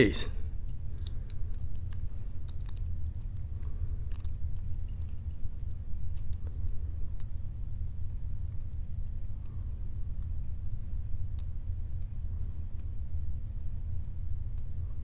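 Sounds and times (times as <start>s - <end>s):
steady low hum: 0.0s - 15.0s
lock pick clicking and scraping: 0.7s - 5.4s.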